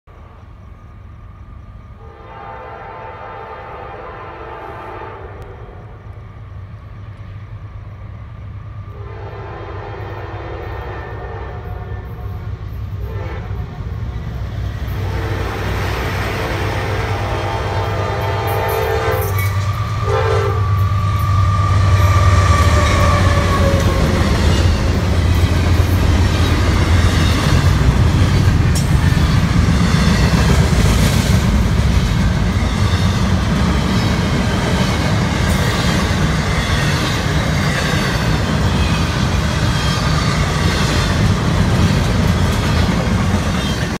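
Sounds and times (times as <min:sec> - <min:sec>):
train horn: 0:02.0 - 0:06.1, 0:08.9 - 0:13.9, 0:14.9 - 0:25.0
locomotive rumble: 0:05.4 - 0:44.0
rolling freight cars clattering: 0:14.9 - 0:44.0.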